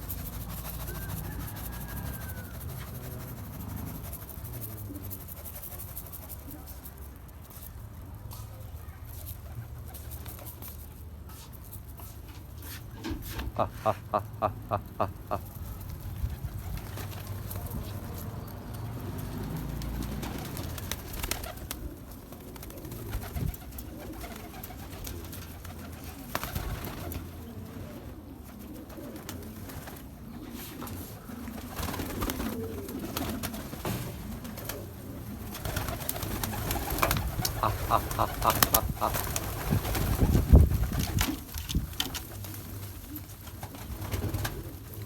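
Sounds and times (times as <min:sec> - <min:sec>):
pigeons cooing: 0:00.0 - 0:05.8, 0:13.2 - 0:16.5, 0:19.4 - 0:40.6.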